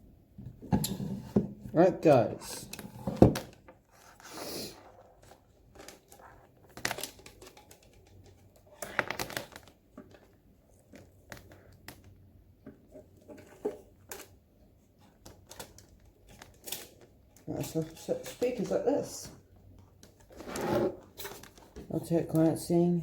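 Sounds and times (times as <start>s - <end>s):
packaging crinkles and rustles: 3.4s - 12.2s, 15.0s - 18.7s, 19.4s - 22.6s.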